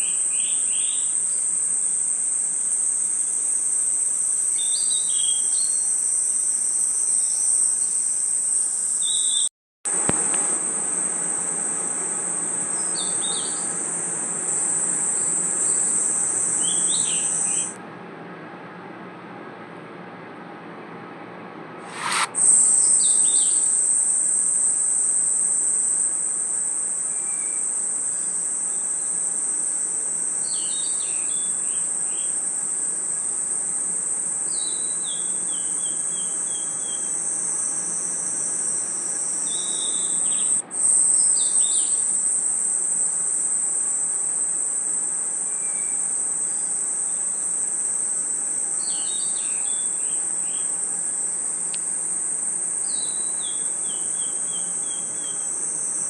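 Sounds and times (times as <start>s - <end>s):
crickets trilling: 0.0s - 17.8s, 21.9s - 56.0s
short lower chirps: 21.9s - 23.6s.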